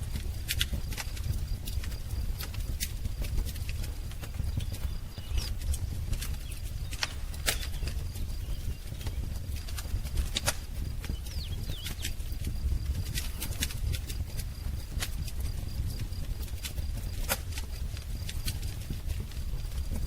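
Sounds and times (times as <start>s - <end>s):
wood fire crackling and popping: 0.0s - 20.0s
faint bird chirp: 4.2s - 13.6s.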